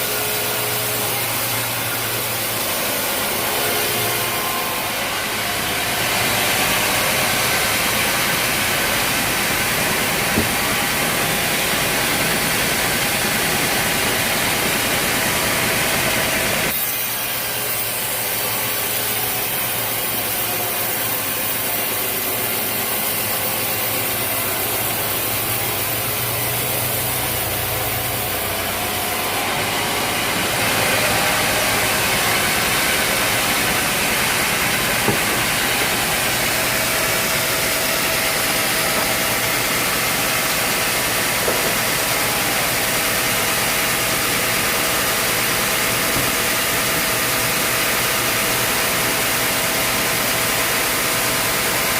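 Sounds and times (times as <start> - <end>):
saw cutting through log: 0.0 - 51.9
sawmill engine running: 0.0 - 51.9.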